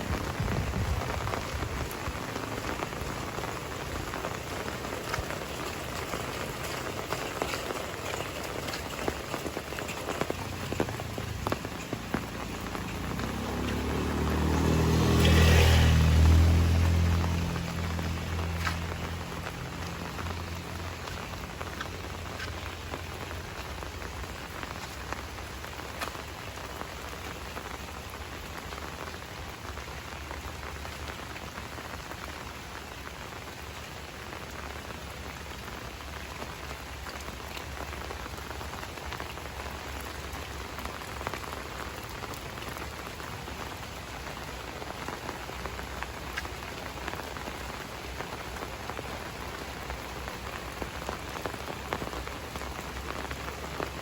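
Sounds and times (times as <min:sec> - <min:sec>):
individual raindrop hits: 0:00.0 - 0:54.0
steady rainfall: 0:00.0 - 0:54.0.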